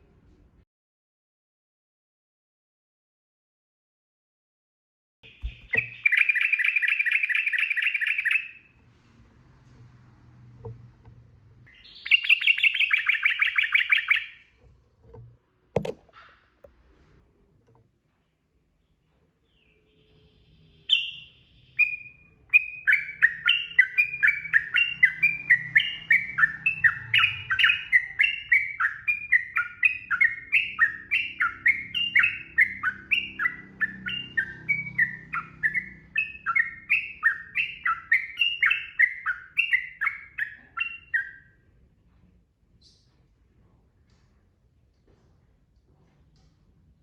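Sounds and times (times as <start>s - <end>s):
bird singing whistled notes: 5.3s - 8.7s, 11.7s - 14.4s, 19.5s - 41.6s.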